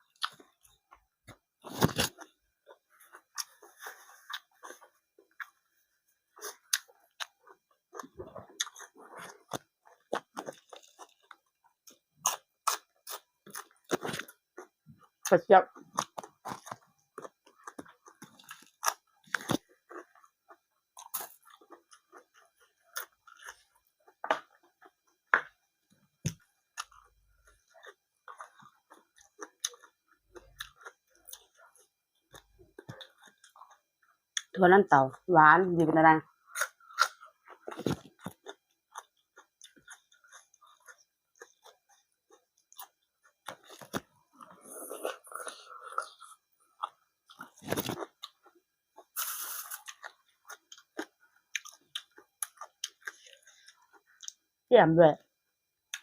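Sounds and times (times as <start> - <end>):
crunching raw vegetables: 0.0 - 5.6, 6.4 - 25.0, 36.4 - 54.4
person chewing: 0.0 - 5.7, 6.3 - 25.3, 26.3 - 34.6, 36.3 - 54.5.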